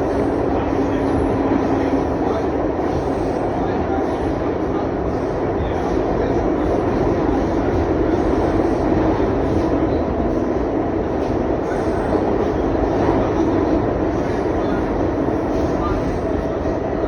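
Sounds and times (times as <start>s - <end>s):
subway train rumbling in tunnel: 0.0s - 17.0s.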